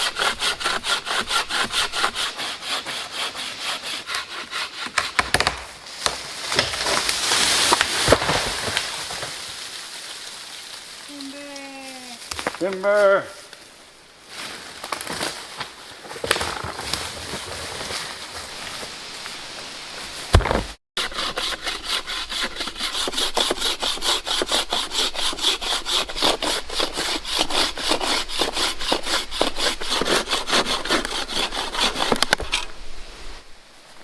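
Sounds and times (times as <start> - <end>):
hand saw cutting wood: 0.0 - 5.5, 20.4 - 32.7.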